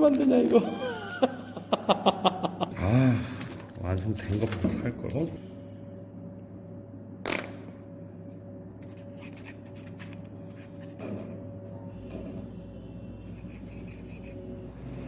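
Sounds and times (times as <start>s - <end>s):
steady low hum: 0.0s - 15.0s
sharp click of small parts: 7.3s - 7.8s.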